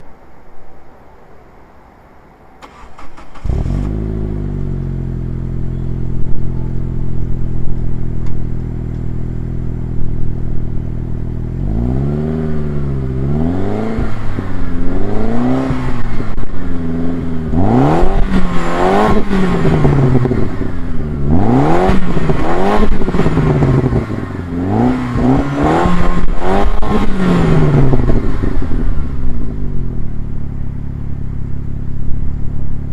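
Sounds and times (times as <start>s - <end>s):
car engine starting and idling: 2.5s - 32.9s
engine revving in throttle blips: 2.6s - 7.0s, 11.5s - 29.9s.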